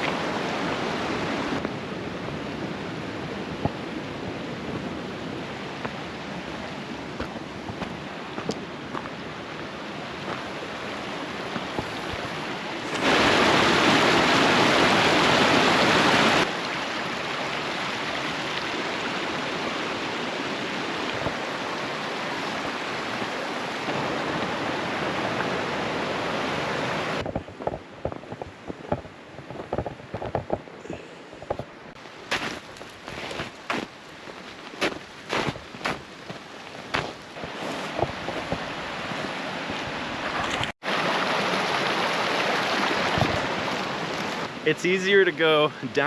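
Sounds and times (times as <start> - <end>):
fast-flowing water rushing: 0.0 - 27.2, 33.5 - 46.0
footsteps on a trail: 5.8 - 10.5, 11.4 - 13.2, 27.2 - 40.7, 42.8 - 44.5.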